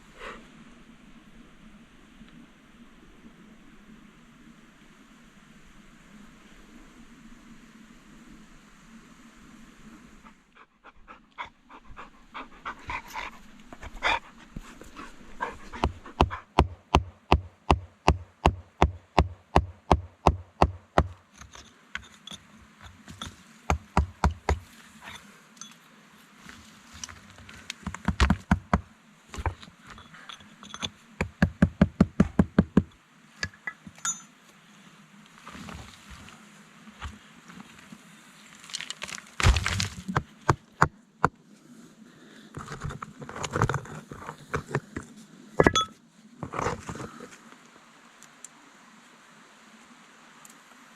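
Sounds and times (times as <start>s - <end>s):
dog panting: 10.6s - 16.6s.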